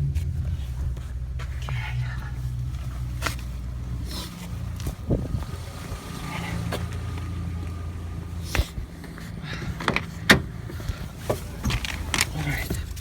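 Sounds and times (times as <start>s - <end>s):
car humming: 0.0s - 13.0s
sharp clicks and knocks: 6.7s - 13.0s.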